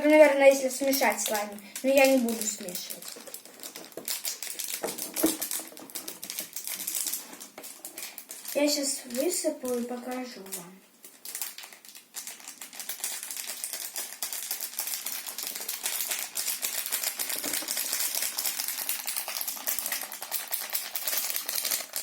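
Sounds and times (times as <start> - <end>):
powder grains pouring into container: 12.2 - 22.0.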